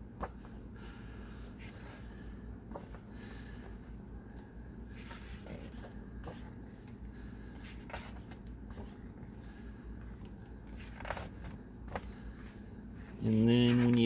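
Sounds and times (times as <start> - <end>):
low steady hum: 0.0 - 14.0
paper pages rustling: 4.4 - 14.0.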